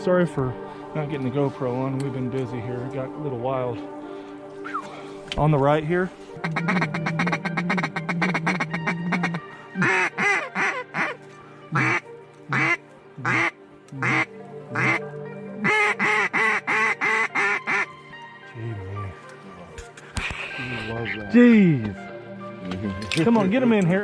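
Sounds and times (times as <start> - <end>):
duck quacking: 6.4 - 15.0, 15.6 - 17.9.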